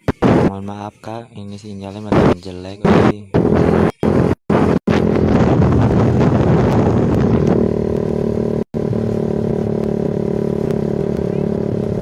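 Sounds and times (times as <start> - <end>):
motorcycle engine idling loudly: 3.4 - 12.0.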